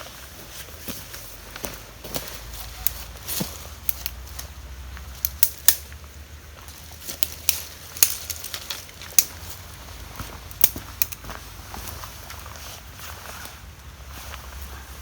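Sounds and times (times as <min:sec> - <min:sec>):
sharp snaps and clicks: 0:03.8 - 0:04.5, 0:05.2 - 0:06.0, 0:07.1 - 0:09.4, 0:10.5 - 0:11.3.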